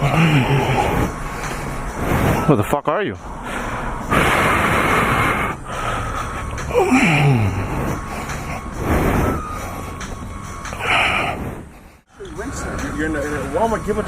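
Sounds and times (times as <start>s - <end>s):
wind on microphone: 8.8s - 9.9s.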